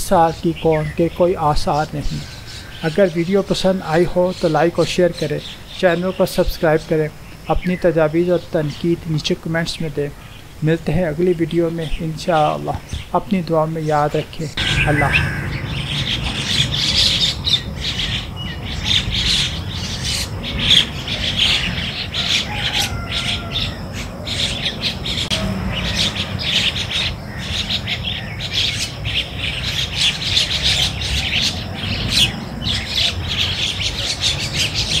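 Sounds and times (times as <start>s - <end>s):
birds chirping chorus: 0.0s - 35.0s
steady low rumble: 14.6s - 18.0s.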